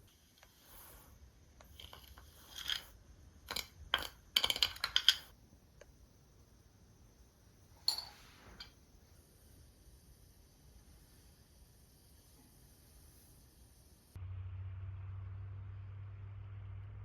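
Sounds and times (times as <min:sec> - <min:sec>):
small hard clicks and clatters: 0:01.6 - 0:05.4.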